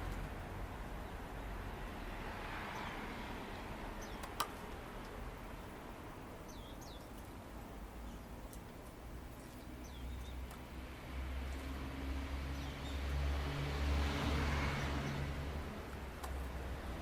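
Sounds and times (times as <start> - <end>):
sharp click: 4.2 - 4.6
small bird chirping: 6.4 - 7.2, 9.4 - 10.7.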